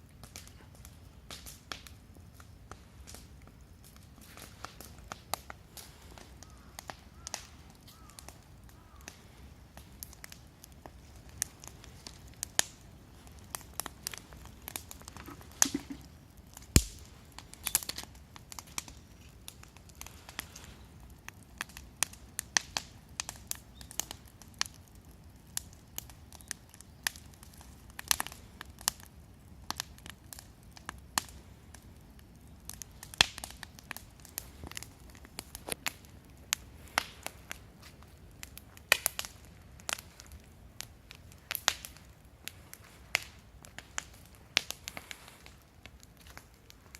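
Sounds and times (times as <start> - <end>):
fire pops and snaps: 0.0 - 46.9
wood fire crackling: 0.0 - 46.9.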